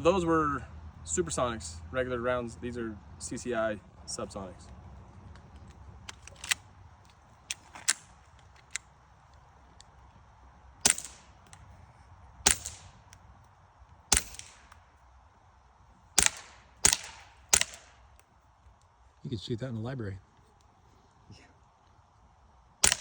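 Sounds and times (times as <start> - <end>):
suppressed gunshots: 10.8 - 11.6, 12.4 - 13.2, 14.1 - 14.8, 16.2 - 18.2.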